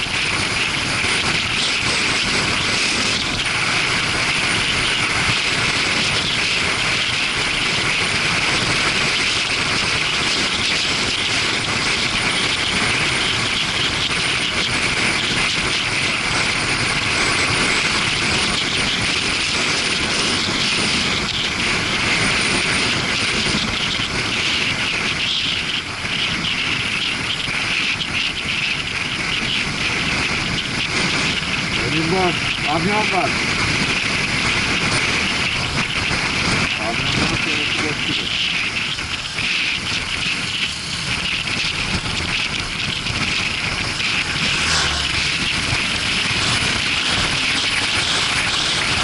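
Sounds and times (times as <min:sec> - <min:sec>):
motorcycle engine running: 0:00.0 - 0:49.0
wind rushing on microphone: 0:00.0 - 0:49.0.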